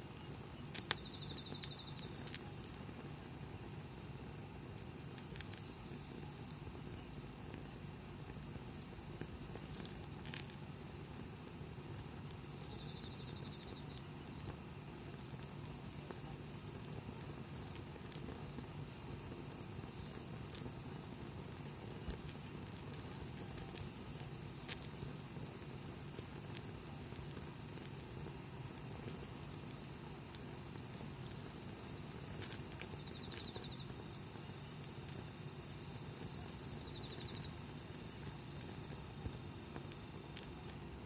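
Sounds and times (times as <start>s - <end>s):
insects trilling: 0.0s - 41.0s
repeating insect trill: 0.1s - 2.8s, 12.5s - 14.1s, 27.5s - 41.0s
campfire crackling with pops: 0.4s - 3.4s.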